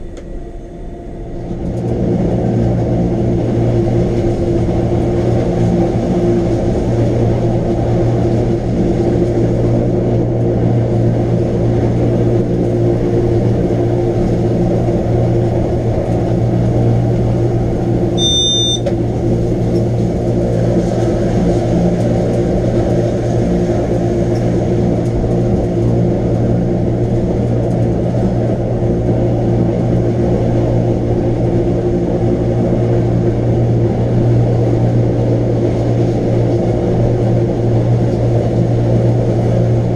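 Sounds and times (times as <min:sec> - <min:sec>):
electric train droning: 0:00.0 - 0:39.9
high beep: 0:18.2 - 0:18.9.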